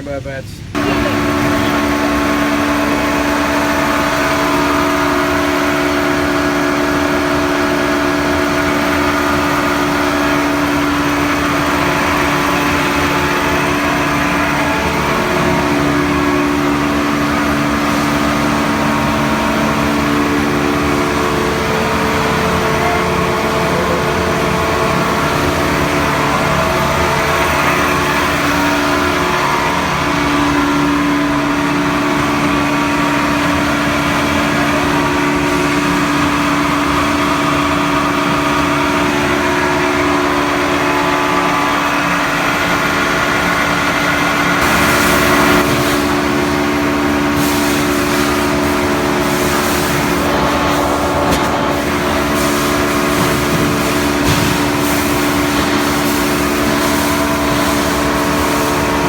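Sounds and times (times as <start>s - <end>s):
sawmill machinery humming: 0.0s - 59.0s
knocks and clatters: 42.4s - 59.0s.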